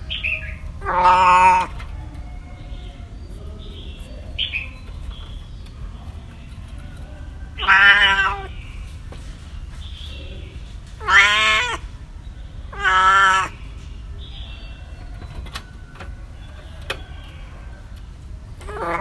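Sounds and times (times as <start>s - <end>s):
low background hum: 0.0s - 19.0s
cat meowing: 0.8s - 1.9s, 7.5s - 8.6s, 11.0s - 11.8s, 12.7s - 13.6s, 18.6s - 19.0s.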